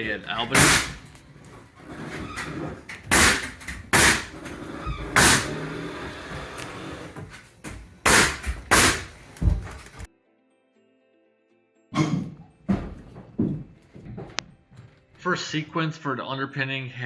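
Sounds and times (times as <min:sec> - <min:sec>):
low work noise: 0:00.0 - 0:10.1
loud sharp construction bangs: 0:00.5 - 0:01.0, 0:03.1 - 0:04.4, 0:05.2 - 0:05.7, 0:08.0 - 0:09.1.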